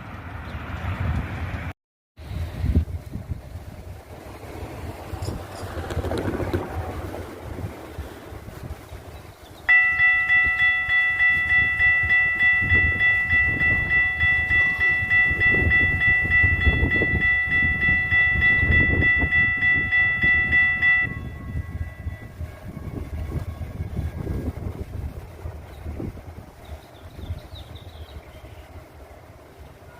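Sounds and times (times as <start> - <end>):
light rail train rumble: 0.0 - 29.9
warning bell ringing rapidly: 9.7 - 22.4.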